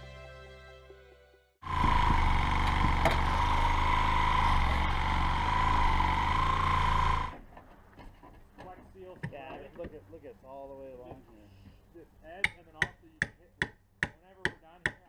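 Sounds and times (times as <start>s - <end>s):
power tool whining: 1.6s - 7.4s.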